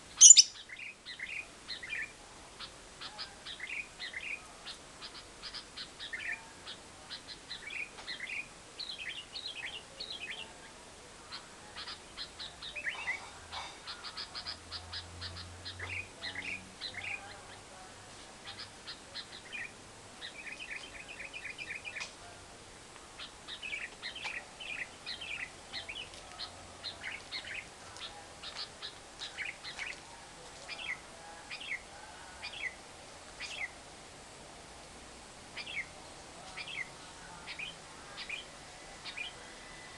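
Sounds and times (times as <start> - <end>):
lovebird chattering: 0.0 - 10.4, 18.4 - 22.1.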